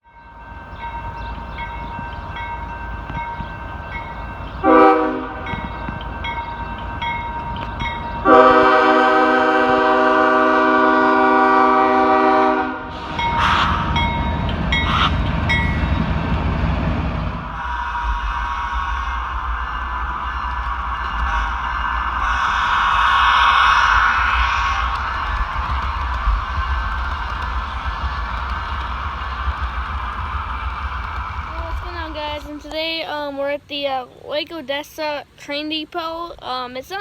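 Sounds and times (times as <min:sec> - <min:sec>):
train rumble: 0:00.0 - 0:37.0
train horn blasts: 0:04.6 - 0:05.8, 0:08.2 - 0:16.0.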